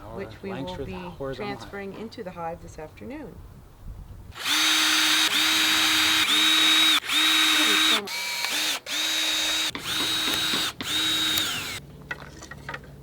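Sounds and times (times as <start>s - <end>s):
power drill whining: 4.4s - 11.8s.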